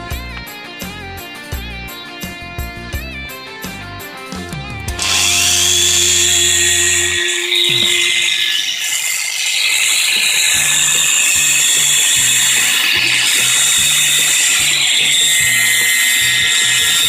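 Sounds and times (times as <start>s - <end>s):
background music with bass: 0.0s - 8.2s
angle grinder grinding hiss: 5.0s - 17.0s.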